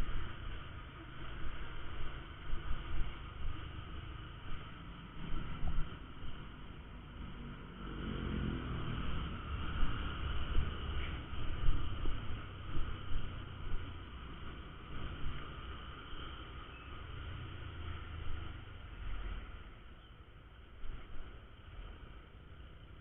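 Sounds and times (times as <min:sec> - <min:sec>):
motorcycle engine running: 0:00.0 - 0:20.0
road noise: 0:00.0 - 0:23.0.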